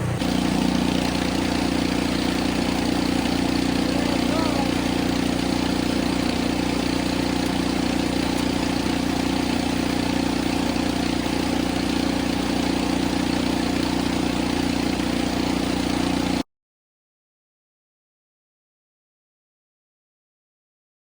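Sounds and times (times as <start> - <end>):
snow blower engine running: 0.0 - 16.4.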